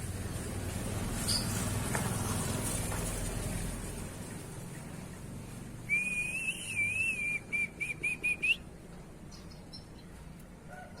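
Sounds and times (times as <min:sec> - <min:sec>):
bird singing whistled phrases: 0:05.9 - 0:08.6.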